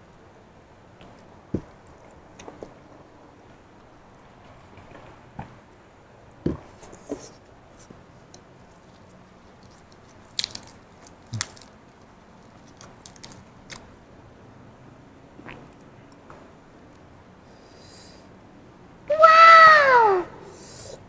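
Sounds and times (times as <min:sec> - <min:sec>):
crunching raw vegetables: 0:06.5 - 0:14.0.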